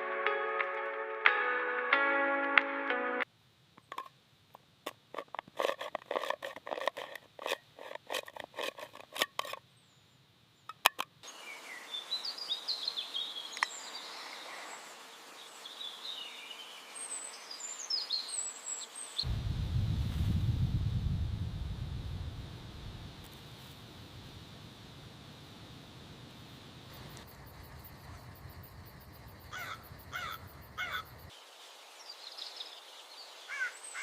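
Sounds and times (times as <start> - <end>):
low rumble: 19.3 - 23.2.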